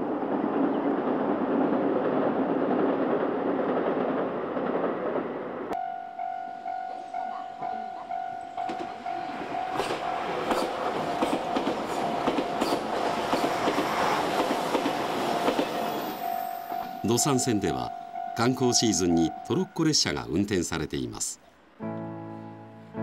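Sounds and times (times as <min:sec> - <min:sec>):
level-crossing warning bell: 0:05.7 - 0:13.1, 0:15.2 - 0:20.4
train wheels clacking over rail joints: 0:08.6 - 0:16.0.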